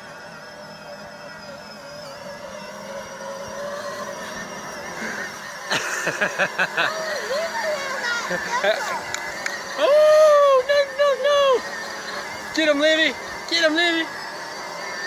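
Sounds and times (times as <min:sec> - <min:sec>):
toy truck motor whining: 0:00.0 - 0:15.0
child's voice: 0:06.8 - 0:09.3.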